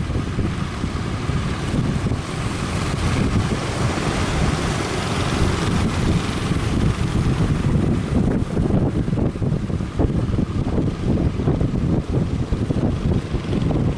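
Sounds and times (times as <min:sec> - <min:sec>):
wind buffeting microphone: 0:00.0 - 0:13.9
surf breaking: 0:00.7 - 0:08.8.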